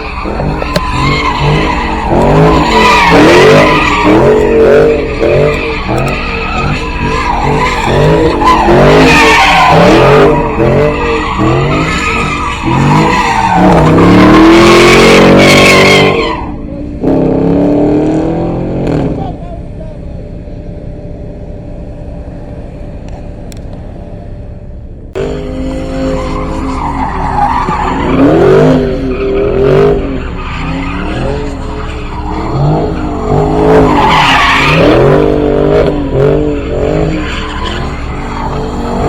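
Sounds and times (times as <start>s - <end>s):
tyres squealing: 0.0s - 16.7s, 25.7s - 39.0s
car engine revving: 0.0s - 39.0s.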